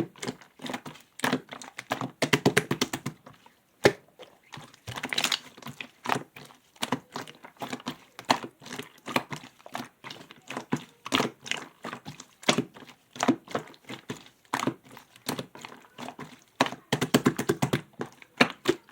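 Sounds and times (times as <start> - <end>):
slime clicking and crackling: 3.8 - 18.9.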